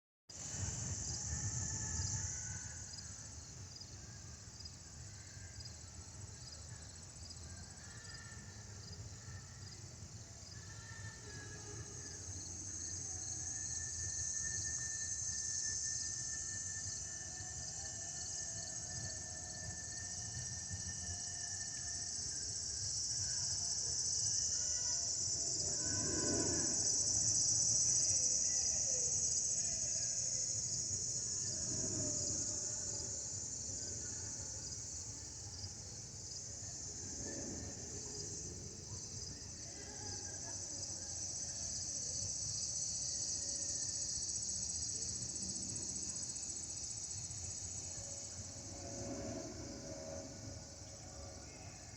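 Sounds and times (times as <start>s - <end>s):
crickets trilling: 0.3s - 51.9s
jet aircraft rumble: 25.2s - 27.8s, 31.2s - 34.9s, 48.2s - 51.9s.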